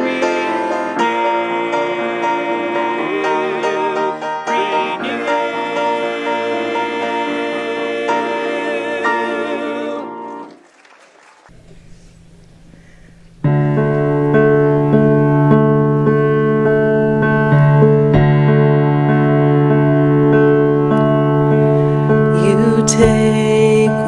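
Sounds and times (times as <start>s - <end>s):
keyboard sustained chords: 13.3s - 24.0s.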